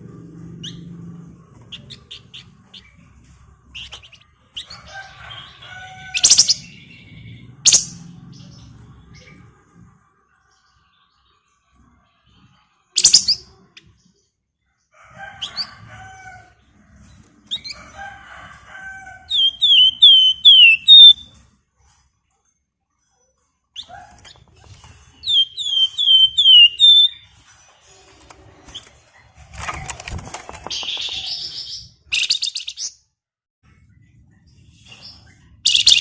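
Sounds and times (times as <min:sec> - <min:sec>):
bird singing chattering notes: 0:19.4 - 0:21.2, 0:25.2 - 0:27.2, 0:30.6 - 0:32.8.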